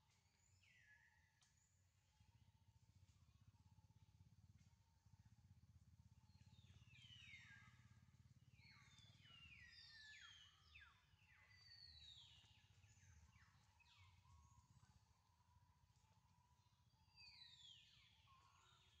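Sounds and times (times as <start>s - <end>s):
low steady hum: 1.2s - 19.0s.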